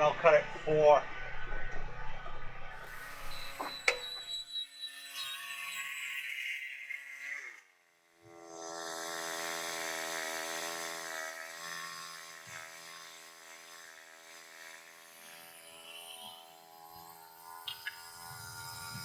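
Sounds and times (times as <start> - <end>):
saw blade cutting log: 9.4 - 17.4.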